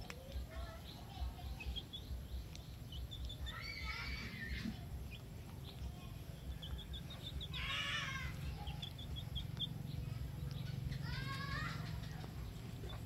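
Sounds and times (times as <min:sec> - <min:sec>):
bird chirping: 0:00.0 - 0:13.0
low steady rumble: 0:00.0 - 0:13.0.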